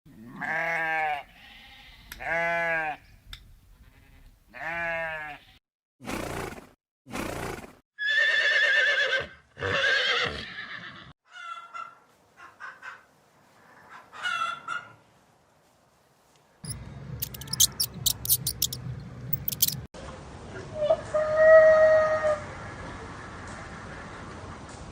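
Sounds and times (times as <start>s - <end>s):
sheep bleating: 0.2s - 3.0s, 3.9s - 5.6s
horse whinnying: 8.0s - 11.1s.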